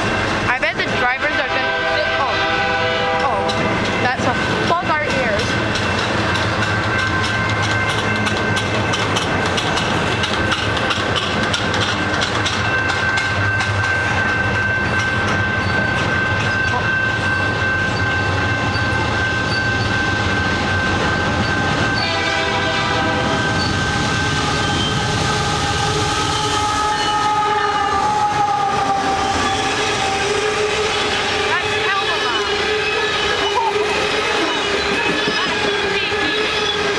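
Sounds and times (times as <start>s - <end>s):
train passing: 0.0s - 36.9s
train horn: 0.6s - 5.4s, 21.8s - 36.9s
steady high tone: 12.6s - 36.9s.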